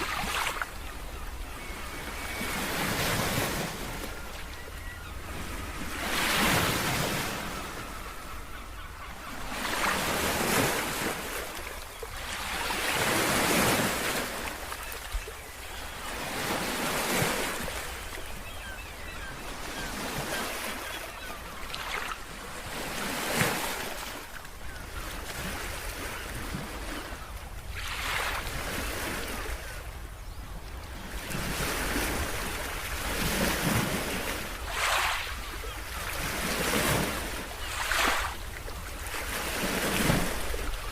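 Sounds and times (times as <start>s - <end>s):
ocean waves breaking on shore: 0.0s - 40.9s.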